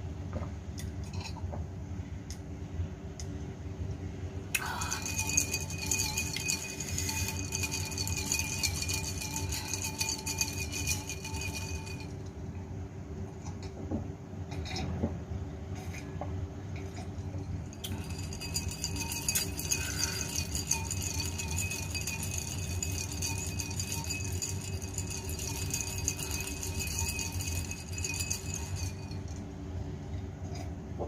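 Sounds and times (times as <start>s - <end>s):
steady low hum: 0.0s - 31.0s
glass clinking: 4.6s - 12.3s, 16.8s - 29.5s.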